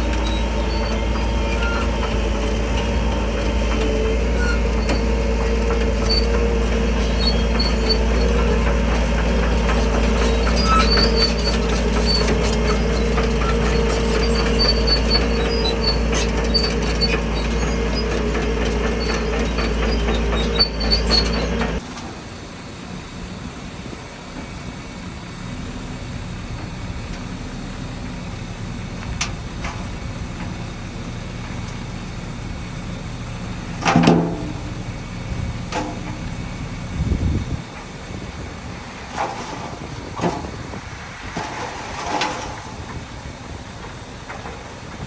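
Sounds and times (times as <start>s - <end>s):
high squeals: 0.0s - 3.3s, 4.0s - 21.8s
steel tracks clanking: 0.0s - 22.6s, 33.6s - 36.8s, 37.4s - 45.0s
diesel engine under load: 0.0s - 45.0s
low machinery rumble: 0.0s - 45.0s.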